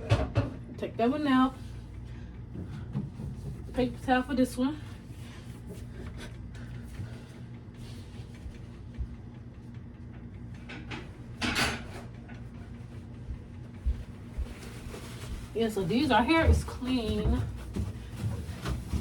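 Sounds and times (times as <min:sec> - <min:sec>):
fridge shelf knocks and rustles: 0:00.0 - 0:00.6, 0:02.5 - 0:03.9, 0:15.1 - 0:19.0
steady low hum: 0:00.0 - 0:19.0.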